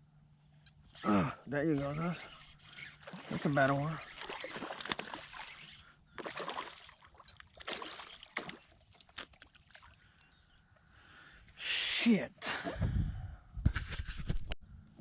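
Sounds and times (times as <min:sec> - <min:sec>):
water splashing around kayak: 0:01.8 - 0:10.0.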